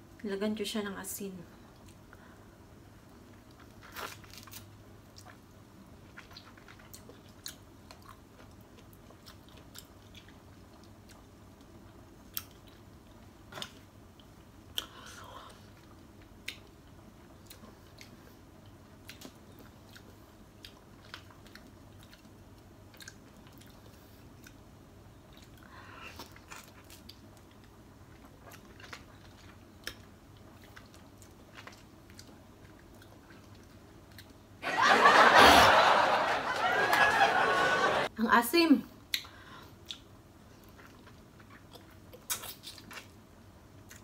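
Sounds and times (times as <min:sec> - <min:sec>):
chewing and wet mouth clicks: 0:06.1 - 0:15.0, 0:15.7 - 0:24.6, 0:25.3 - 0:34.4, 0:39.1 - 0:43.2.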